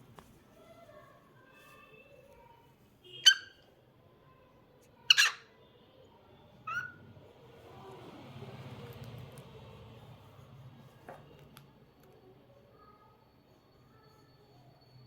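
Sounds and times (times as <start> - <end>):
cockatiel loud calls: 5.1 - 5.5, 6.7 - 7.0.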